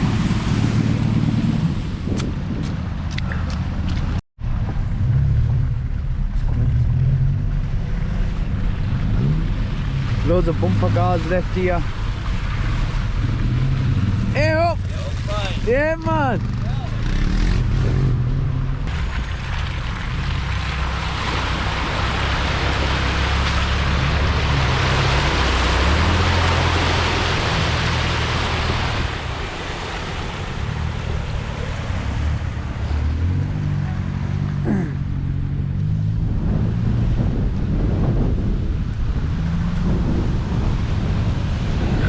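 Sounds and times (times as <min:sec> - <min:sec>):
vehicle engine revving: 0:04.6 - 0:42.0
water splashing: 0:05.4 - 0:16.2, 0:16.8 - 0:34.8.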